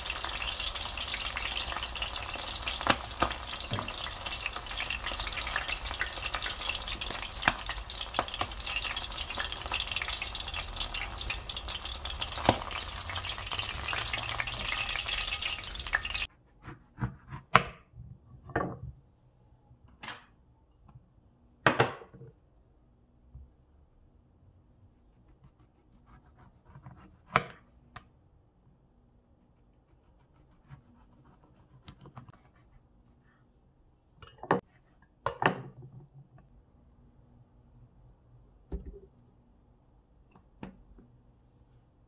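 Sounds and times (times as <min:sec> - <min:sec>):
batter frying in hot oil: 0:00.0 - 0:16.3.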